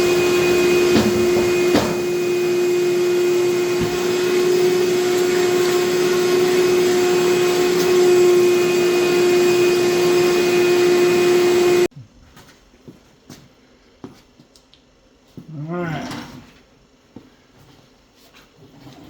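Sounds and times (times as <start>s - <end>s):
shop vacuum running: 0.0s - 11.9s.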